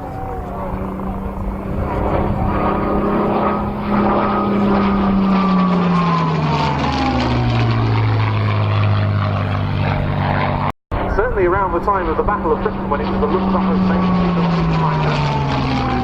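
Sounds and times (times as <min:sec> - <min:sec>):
propeller plane flying past: 0:00.0 - 0:16.0.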